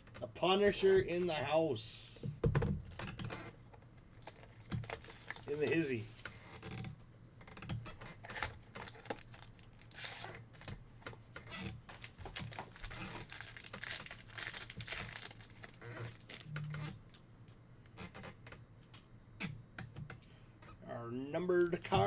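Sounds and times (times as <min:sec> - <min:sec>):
card pack wrappers crinkling and tearing: 0:04.1 - 0:06.4, 0:08.2 - 0:10.8, 0:11.7 - 0:17.2.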